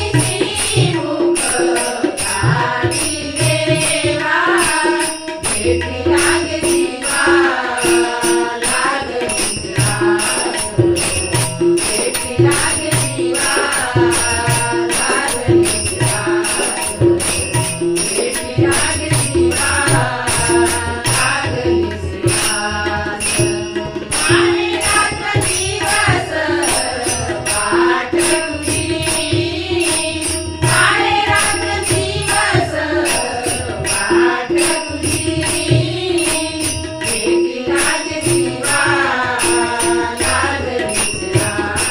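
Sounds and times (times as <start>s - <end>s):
voices singing a melody: 0.0s - 11.2s, 11.8s - 17.3s, 18.0s - 41.9s
harmonium: 0.0s - 41.9s
tabla: 0.0s - 41.9s
small hand cymbals ringing: 22.2s - 41.9s.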